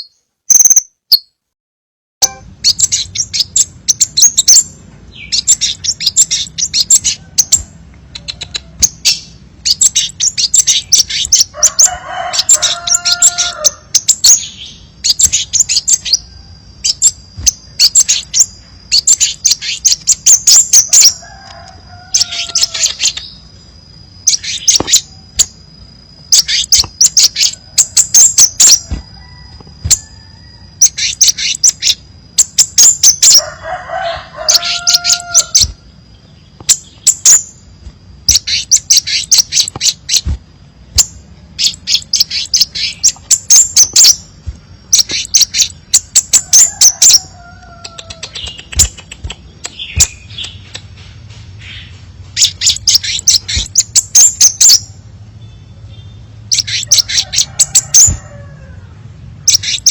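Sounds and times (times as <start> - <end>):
bird twittering chirps: 0.0 - 1.4, 2.2 - 58.5, 59.2 - 59.9
bird drawn-out calls: 26.3 - 35.8.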